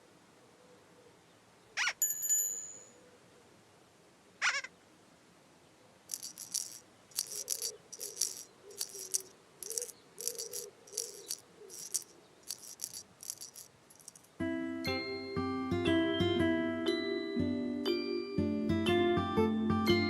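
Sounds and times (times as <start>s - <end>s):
shaker-like rattling: 6.1s - 14.4s.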